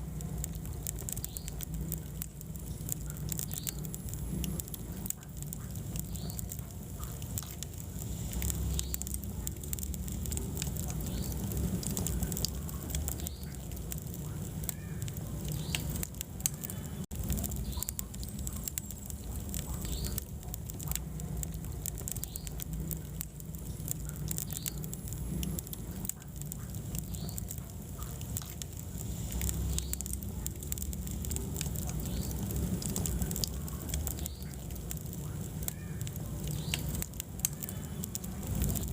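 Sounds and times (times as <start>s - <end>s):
burning logs crackling and popping: 0.0s - 38.9s
fire rumbling: 0.0s - 38.9s.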